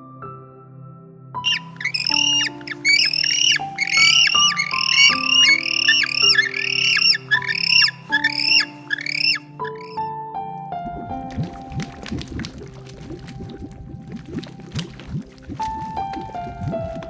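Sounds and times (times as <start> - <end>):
soft piano music: 0.0 - 17.0
bird squawking: 1.5 - 10.0.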